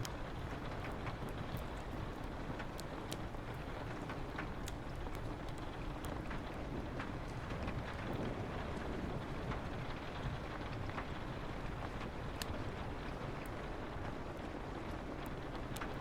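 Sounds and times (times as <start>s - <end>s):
rain on a window: 0.0s - 16.0s
wood fire crackling and popping: 0.0s - 16.0s.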